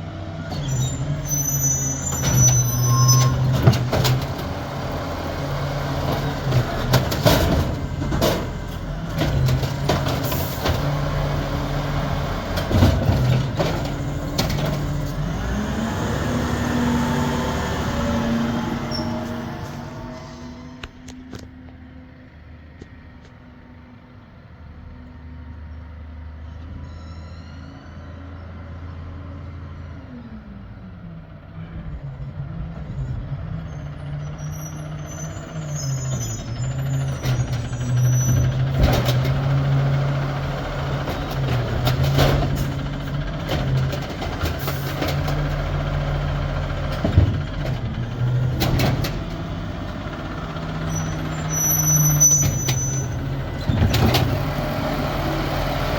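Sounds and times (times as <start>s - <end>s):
garbage truck engine: 0.0s - 26.7s, 28.1s - 55.9s
high squeals: 0.5s - 3.6s, 18.7s - 20.6s, 33.7s - 38.7s, 50.8s - 53.8s
knocks and clatter: 6.0s - 11.1s, 12.5s - 15.4s, 37.2s - 50.0s
hydraulics running: 34.3s - 55.9s.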